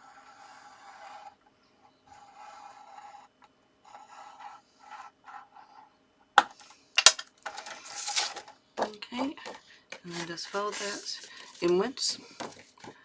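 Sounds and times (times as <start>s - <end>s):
scoring tool scraping card: 0.0s - 1.4s, 2.1s - 3.3s, 10.1s - 13.0s.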